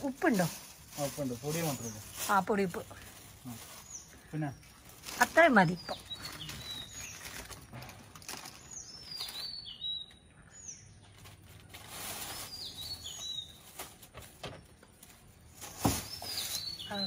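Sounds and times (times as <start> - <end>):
small bird chirping: 3.5 - 7.6, 8.4 - 13.8, 16.0 - 17.0.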